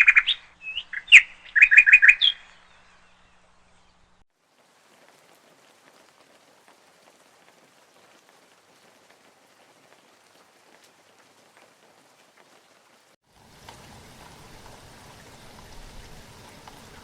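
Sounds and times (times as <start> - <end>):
faint rain: 0.0 - 17.0.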